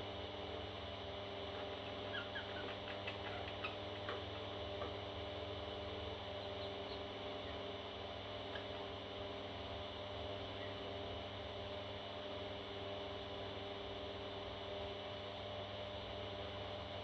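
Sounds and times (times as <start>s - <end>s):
steady electrical hum: 0.0s - 17.0s
baby parrots chirping: 1.8s - 3.8s.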